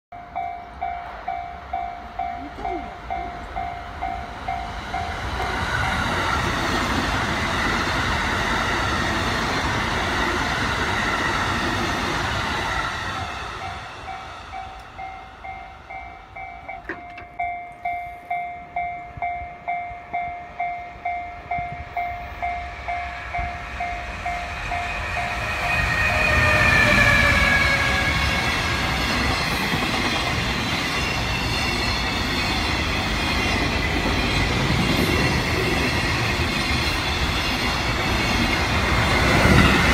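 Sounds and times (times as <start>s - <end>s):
two-tone crossing bell: 0.1s - 6.4s, 13.2s - 26.0s
freight train approaching: 0.1s - 39.9s
train passing: 0.1s - 39.9s.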